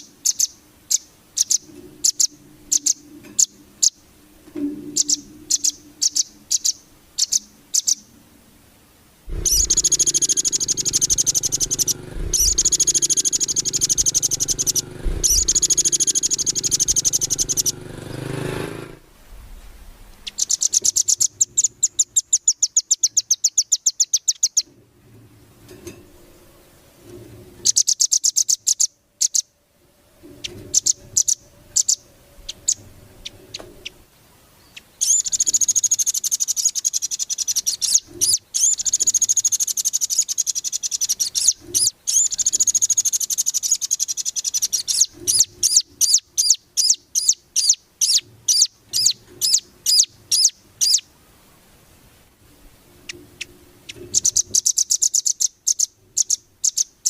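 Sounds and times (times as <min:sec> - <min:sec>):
songbird trills and warbling: 0:00.0 - 0:08.2, 0:09.3 - 0:18.3, 0:20.2 - 0:24.7, 0:27.6 - 0:29.5, 0:30.2 - 0:51.1, 0:53.0 - 0:57.0
sharp bird chips: 0:09.4 - 0:18.8, 0:20.2 - 0:24.7, 0:35.0 - 0:51.0.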